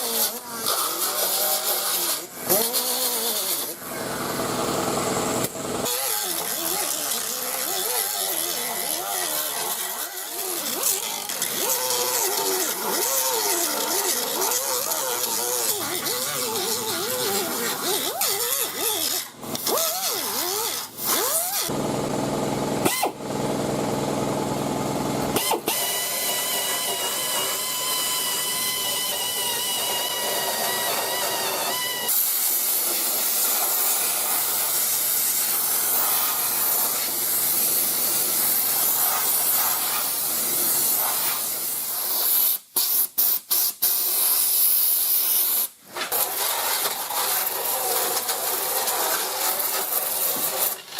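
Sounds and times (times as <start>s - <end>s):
power grinders on metal: 0.0s - 4.3s, 5.0s - 21.7s, 25.4s - 42.4s, 46.0s - 50.9s
lower-pitched power tool: 0.0s - 42.8s, 44.5s - 50.9s
air tool high whine: 22.6s - 43.1s.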